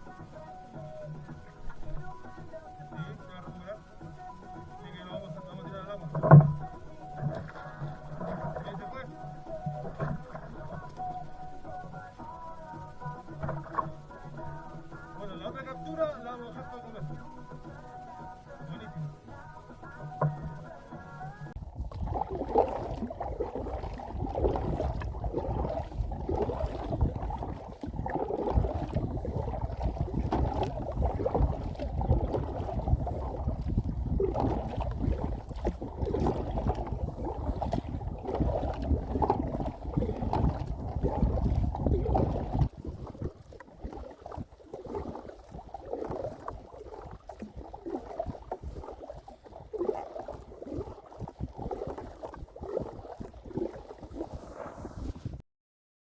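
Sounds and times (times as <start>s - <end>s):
water sloshing around kayak: 0.0s - 55.4s
wind buffeting microphone: 21.6s - 55.4s.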